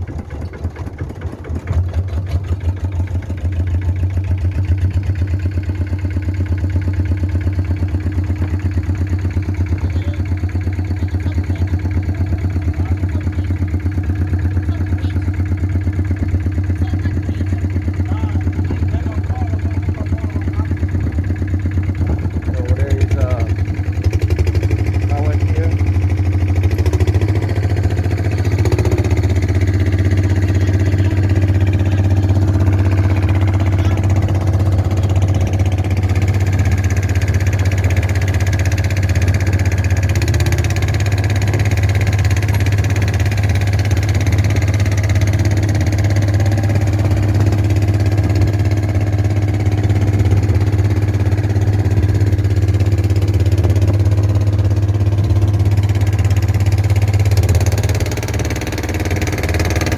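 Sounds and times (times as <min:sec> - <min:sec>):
boat engine running: 0:00.0 - 0:59.9.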